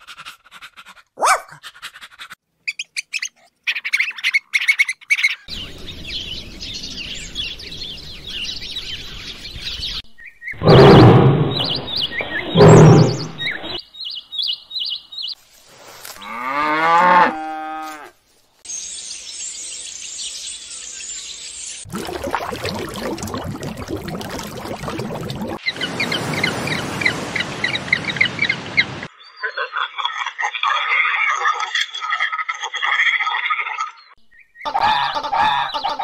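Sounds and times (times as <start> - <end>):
birds chirping: 2.7 - 15.4, 18.7 - 30.0, 33.9 - 36.0
loud animal call: 12.2 - 13.8
cow mooing: 16.2 - 18.1.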